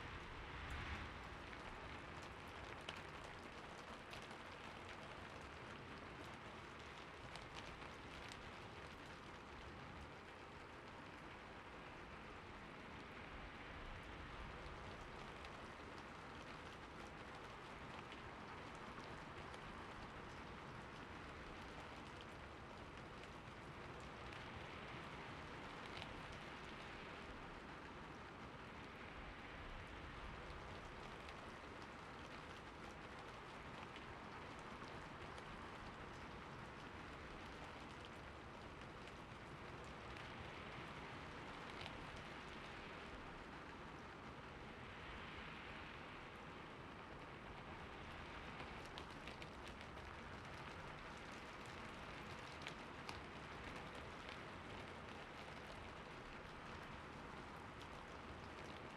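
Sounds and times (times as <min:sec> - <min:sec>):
rain falling: 0:00.0 - 0:58.9
raindrops ticking: 0:00.2 - 0:58.9.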